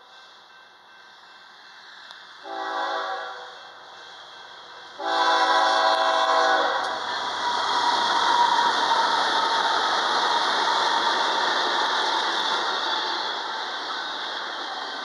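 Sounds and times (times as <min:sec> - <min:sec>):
approaching locomotives: 0:00.0 - 0:15.0
locomotive air horn chord: 0:02.4 - 0:03.6, 0:05.0 - 0:07.0.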